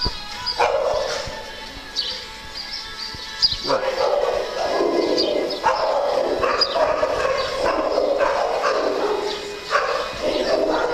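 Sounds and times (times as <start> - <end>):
small dogs barking and yipping: 0.0 - 1.7, 3.6 - 10.9
dogs whining: 3.6 - 10.9.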